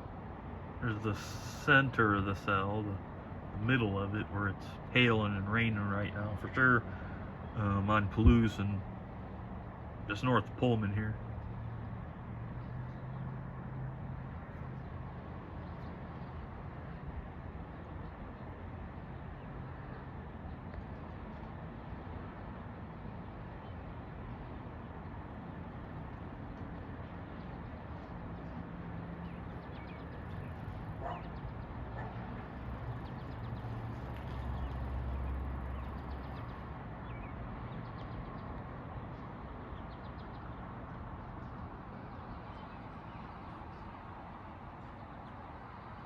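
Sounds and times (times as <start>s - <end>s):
vehicle passing: 28.2s - 37.0s
faint distant calls: 29.1s - 37.3s.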